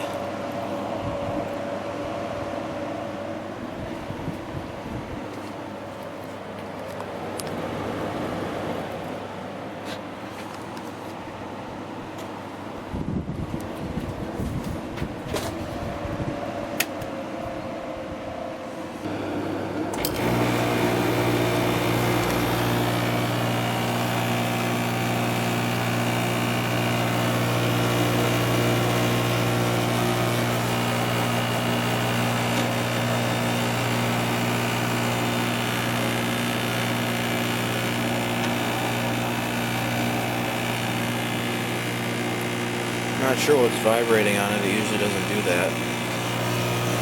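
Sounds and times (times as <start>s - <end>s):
air conditioner fan running: 0.0s - 47.0s
compressor humming: 0.0s - 47.0s.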